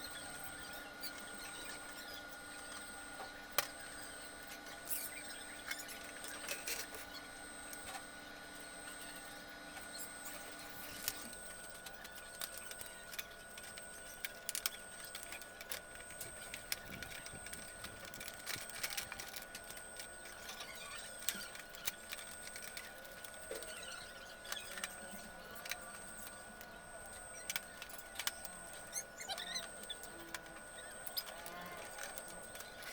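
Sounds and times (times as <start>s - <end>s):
small tools tapping circuit board: 9.8s - 32.9s.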